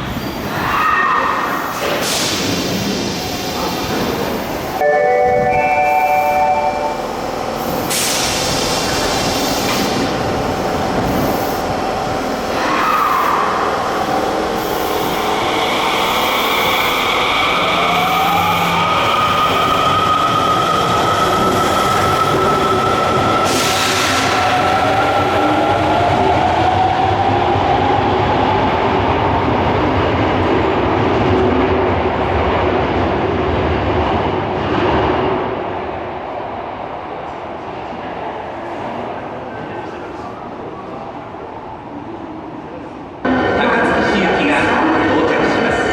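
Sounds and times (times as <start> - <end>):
subway train running past: 0.0 - 45.9
air hissing from brakes: 1.8 - 4.2, 7.6 - 10.2
chiming departure melody: 4.8 - 7.1.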